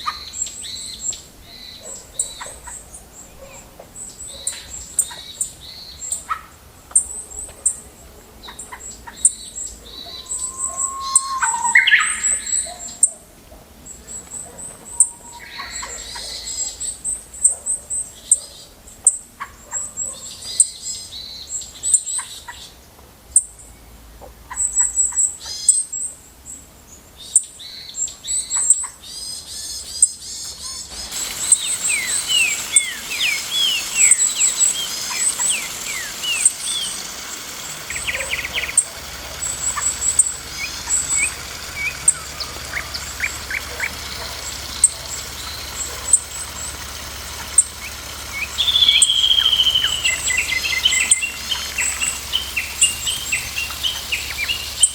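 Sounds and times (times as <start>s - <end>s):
birds chirping: 0.0s - 17.6s, 29.4s - 54.9s
sweeping bird whistles: 9.8s - 13.2s, 14.9s - 16.6s, 31.0s - 54.9s.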